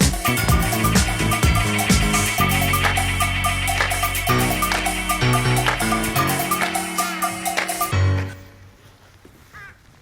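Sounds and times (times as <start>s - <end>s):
background music: 0.0s - 8.7s
crow cawing: 9.5s - 9.8s.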